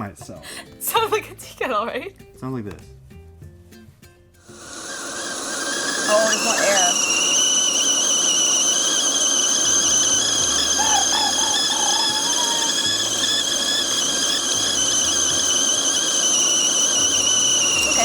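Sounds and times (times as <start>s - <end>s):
kettle whistling: 4.4s - 18.0s
faint wavering hum: 4.5s - 18.0s.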